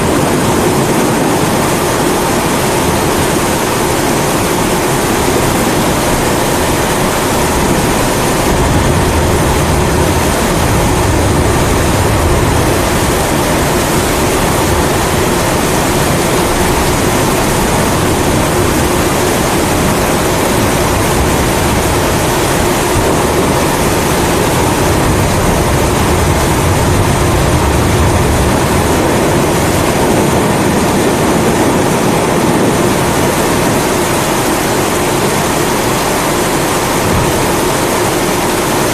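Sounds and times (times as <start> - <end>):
steady rain: 0.0 - 38.9
low thunder rumbles: 4.2 - 34.2.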